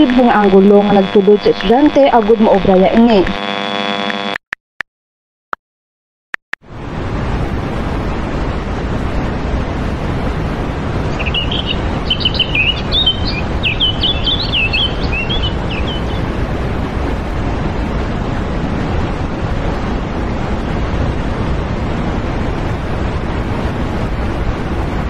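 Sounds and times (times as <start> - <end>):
wind on microphone: 6.7 - 25.0
small bird chirping: 11.2 - 16.3.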